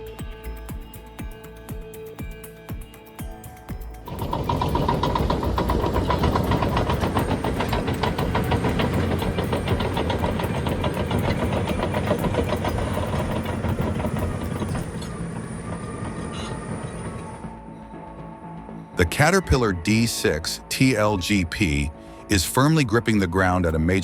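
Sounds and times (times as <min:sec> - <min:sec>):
heavy diesel engine clattering: 0:04.1 - 0:17.4.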